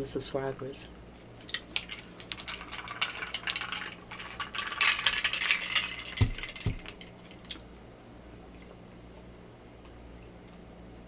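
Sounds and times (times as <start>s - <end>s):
quick rattling: 1.6s - 7.6s.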